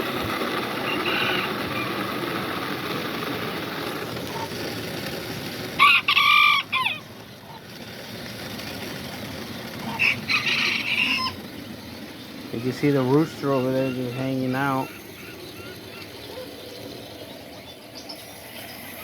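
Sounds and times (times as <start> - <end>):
steady background noise: 0.0 - 19.0
rooster crowing: 0.8 - 2.0, 5.8 - 7.1, 9.9 - 11.4.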